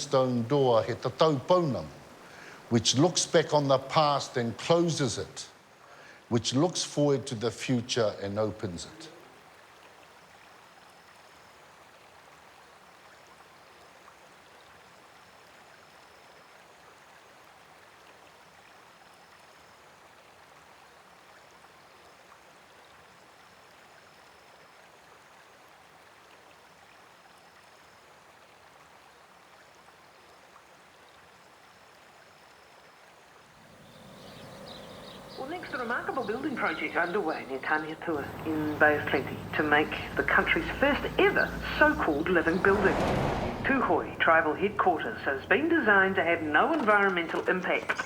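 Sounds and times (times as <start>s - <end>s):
stream rushing: 0.0s - 4.9s, 33.4s - 48.0s.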